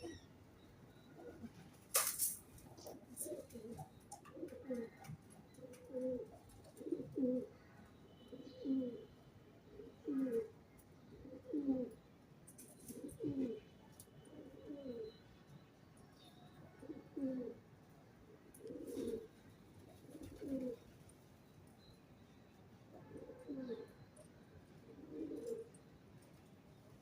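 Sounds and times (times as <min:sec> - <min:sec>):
pigeon cooing: 0:00.0 - 0:00.2, 0:02.8 - 0:07.5, 0:08.3 - 0:09.1, 0:09.8 - 0:10.6, 0:11.2 - 0:12.0, 0:12.9 - 0:13.6, 0:14.3 - 0:15.1, 0:16.8 - 0:17.6, 0:18.5 - 0:19.3, 0:19.9 - 0:20.8, 0:23.0 - 0:24.0, 0:24.9 - 0:25.7.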